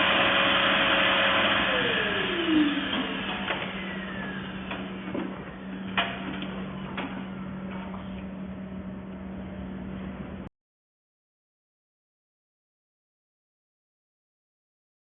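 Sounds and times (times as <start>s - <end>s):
vacuum motor spinning down: 0.0s - 7.6s
steady low hum: 1.9s - 10.5s.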